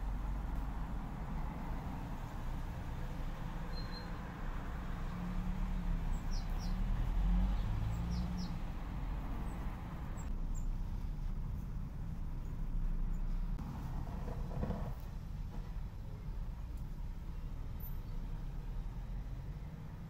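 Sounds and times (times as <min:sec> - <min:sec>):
low outdoor rumble: 0:00.0 - 0:20.0
small birds chirping: 0:05.8 - 0:10.7.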